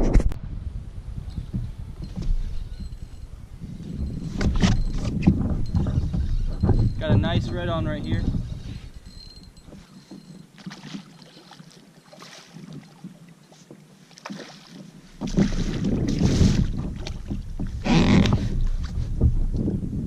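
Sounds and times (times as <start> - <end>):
wind buffeting microphone: 0.0 - 10.5, 15.1 - 20.0.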